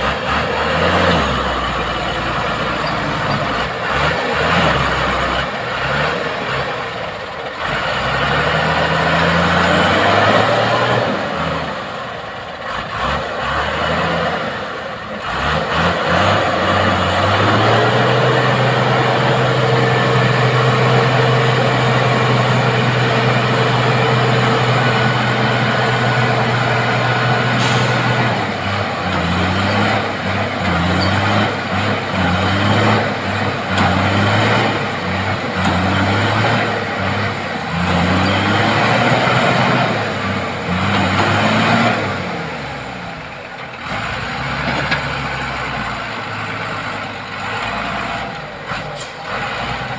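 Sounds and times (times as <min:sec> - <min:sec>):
heavy truck engine revving: 0:00.0 - 0:49.9
air brake hiss: 0:27.6 - 0:28.2, 0:48.8 - 0:49.3.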